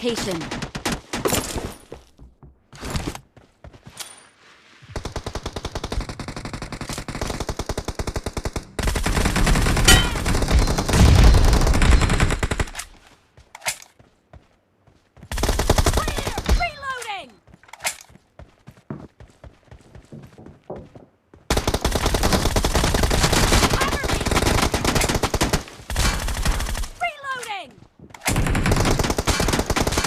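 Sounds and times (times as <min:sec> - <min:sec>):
video game automatic gunfire: 0:05.0 - 0:12.8, 0:21.5 - 0:27.0, 0:28.3 - 0:30.0.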